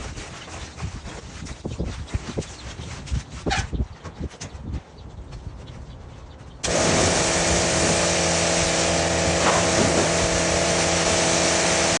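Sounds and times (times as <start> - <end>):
cleaning machine hissing and humming: 6.6 - 12.0.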